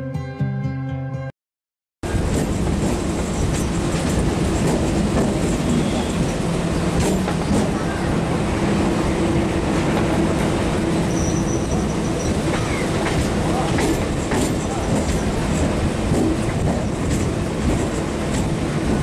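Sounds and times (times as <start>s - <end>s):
train wheels rumbling on rail: 2.0s - 19.0s
high wheel squeal: 5.5s - 6.5s, 10.9s - 13.0s.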